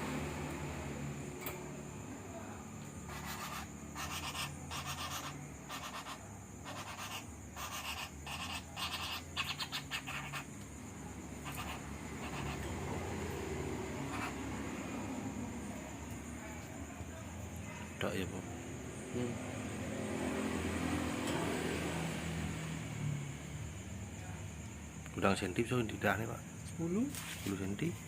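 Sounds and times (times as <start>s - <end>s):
woodpecker harsh rasping calls: 3.0s - 10.6s, 11.3s - 13.0s, 13.9s - 14.6s.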